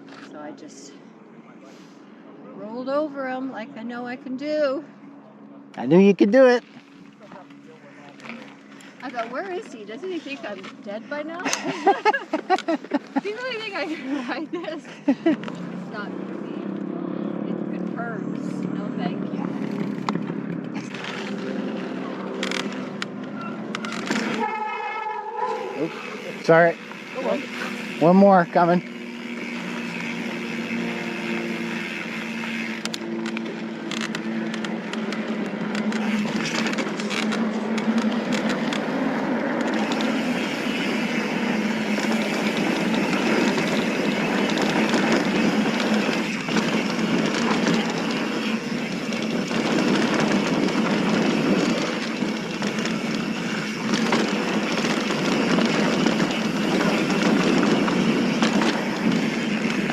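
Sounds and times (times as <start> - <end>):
bike rattling: 5.6 - 59.9
tyres crunching over gravel: 25.4 - 59.9.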